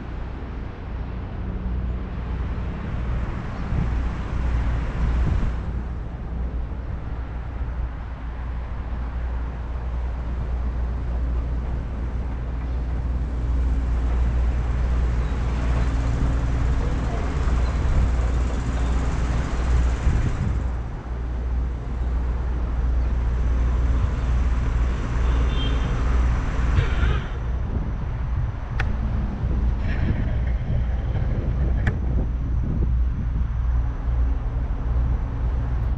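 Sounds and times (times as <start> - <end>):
traffic rumble: 0.0 - 35.9.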